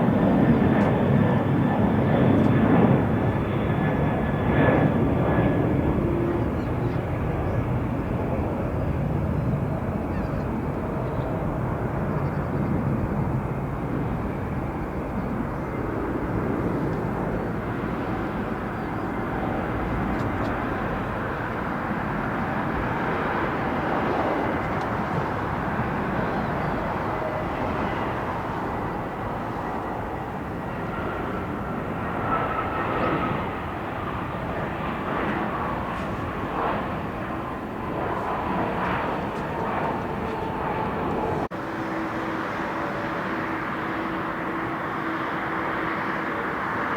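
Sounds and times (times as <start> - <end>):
jet engines roaring: 0.0 - 46.9
falling engine whine: 36.8 - 46.9.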